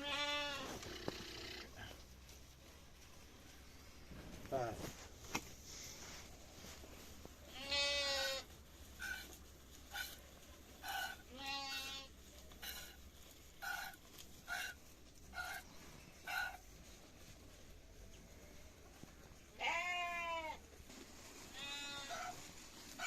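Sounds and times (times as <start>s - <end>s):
goats bleating: 0.0s - 0.9s, 7.5s - 9.2s, 10.8s - 12.8s, 19.6s - 20.6s.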